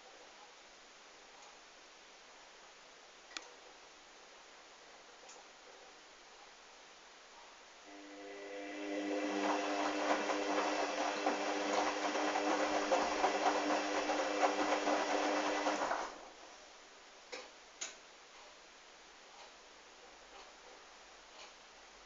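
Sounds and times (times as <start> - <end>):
washing machine drum motor humming: 7.9 - 16.5.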